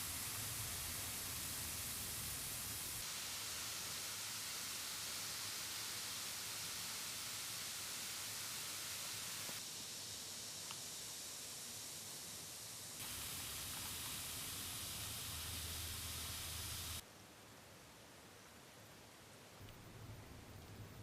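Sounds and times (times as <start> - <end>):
bath ball fizzing in water: 0.0 - 3.0, 13.0 - 17.0.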